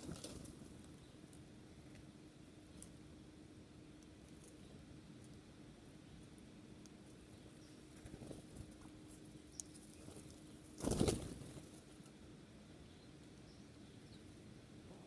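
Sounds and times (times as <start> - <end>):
bird wings flapping: 0.0 - 0.6, 10.0 - 12.0
faint steady hum: 0.0 - 15.0.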